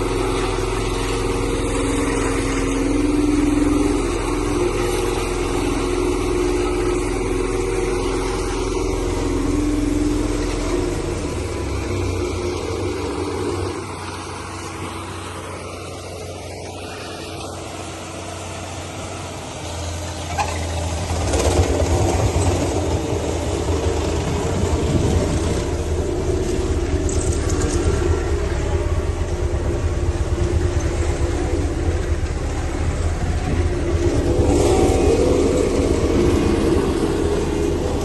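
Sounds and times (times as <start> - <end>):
road roller engine rumbling: 0.0 - 38.0.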